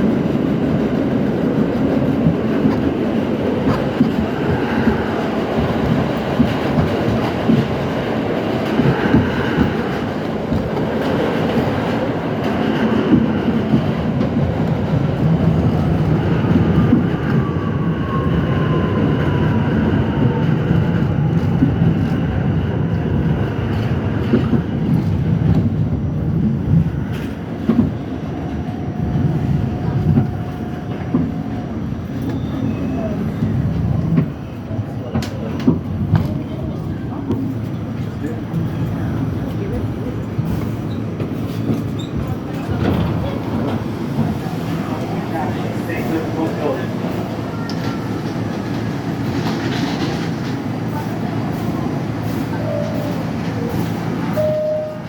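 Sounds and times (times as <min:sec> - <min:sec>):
subway train wheels rumbling: 0:00.0 - 0:55.0
short steady tone: 0:54.4 - 0:55.0.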